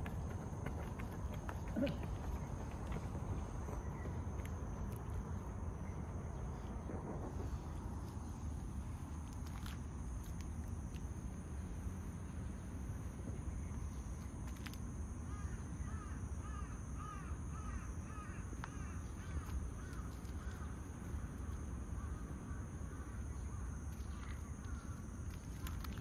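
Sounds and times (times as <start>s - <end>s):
low outdoor rumble: 0.0s - 26.0s.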